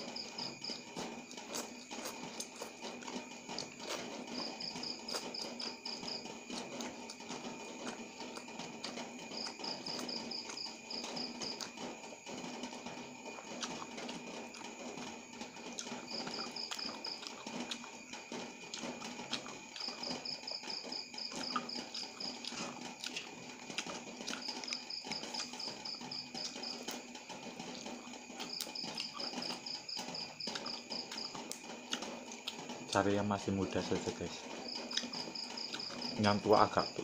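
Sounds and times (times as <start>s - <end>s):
cricket chirping: 0.0s - 37.0s
wet chewing and mouth clicks: 0.1s - 32.8s, 34.7s - 36.2s.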